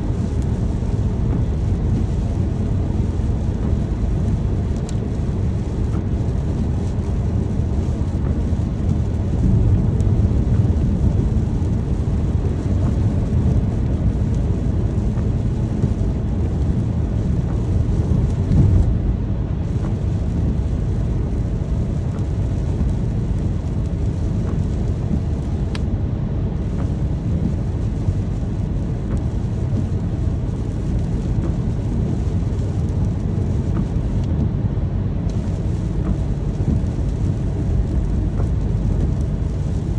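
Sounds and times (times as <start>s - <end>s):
steady rain: 0.0s - 39.9s
distant thunder rumble: 17.4s - 21.1s.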